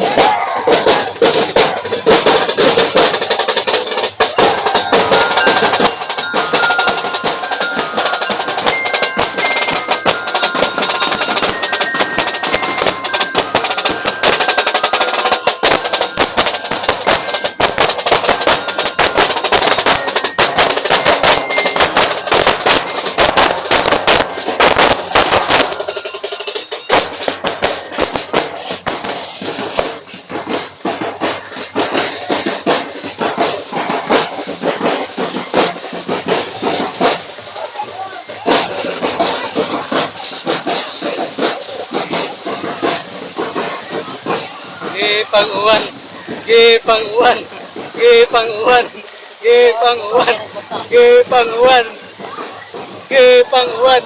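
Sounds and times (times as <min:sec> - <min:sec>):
fast dense drumming: 0:00.0 - 0:54.0
melody of short high notes: 0:04.4 - 0:28.6.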